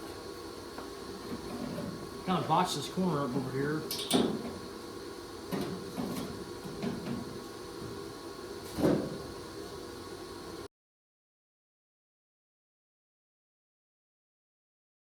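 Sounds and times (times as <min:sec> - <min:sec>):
faint steady hum: 0:00.0 - 0:10.7.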